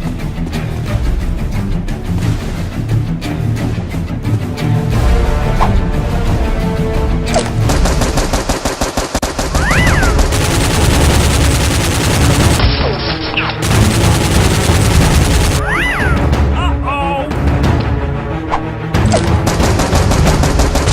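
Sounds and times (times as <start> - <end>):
background music: 0.0 - 20.9
rapid automatic gunfire: 7.7 - 12.7, 13.6 - 15.6, 19.4 - 20.9.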